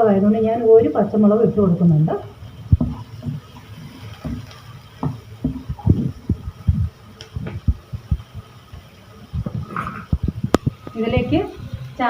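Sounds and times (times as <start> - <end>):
spoon stirring in a pan: 2.7 - 6.8.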